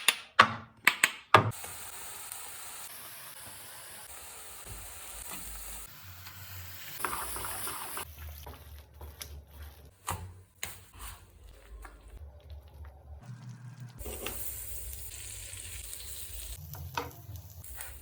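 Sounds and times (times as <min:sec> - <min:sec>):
food sizzling in a pan: 0:01.5 - 0:08.6, 0:13.2 - 0:18.0.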